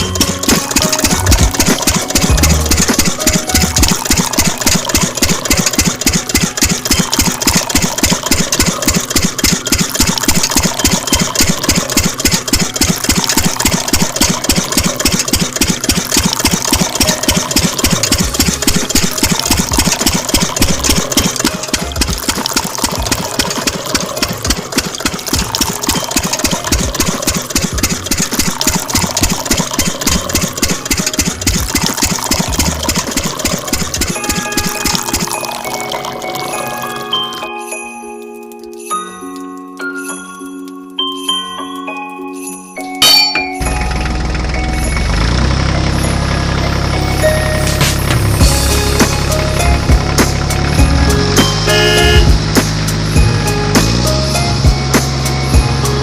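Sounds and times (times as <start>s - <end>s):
diesel engine idling: 43.6s - 56.0s.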